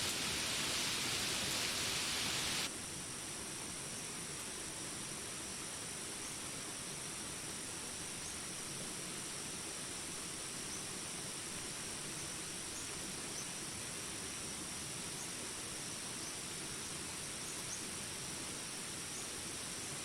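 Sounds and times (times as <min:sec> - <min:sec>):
rain hissing: 0:00.0 - 0:02.7
jungle insects droning: 0:00.0 - 0:20.0.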